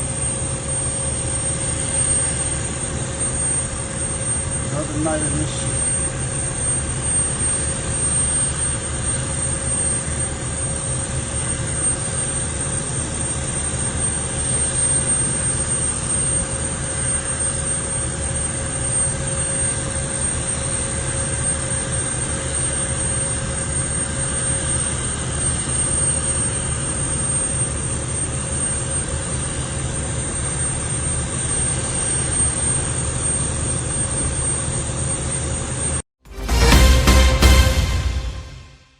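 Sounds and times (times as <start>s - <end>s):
steady mechanical rumble: 0.0s - 11.3s
constant hum: 0.0s - 14.6s.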